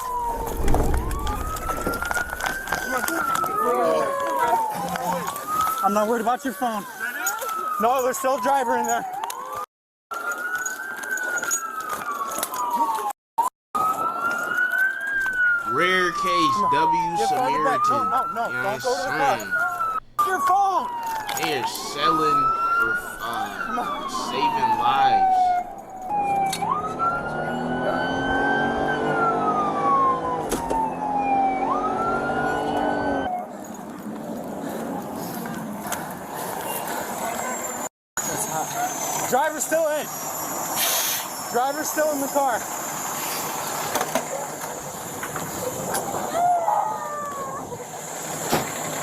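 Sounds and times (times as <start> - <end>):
emergency vehicle siren wailing: 0.0 - 33.6.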